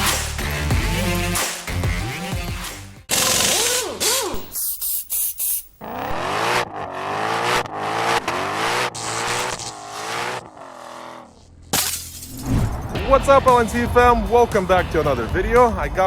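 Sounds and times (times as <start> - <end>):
car engine revving: 5.8 - 11.7.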